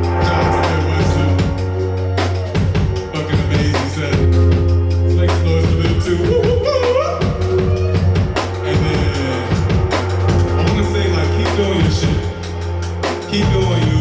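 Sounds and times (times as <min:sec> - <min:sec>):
sustained bass note: 0:00.0 - 0:06.6, 0:07.4 - 0:14.0
drum kit beat: 0:00.0 - 0:14.0
sliding melody line: 0:00.0 - 0:14.0.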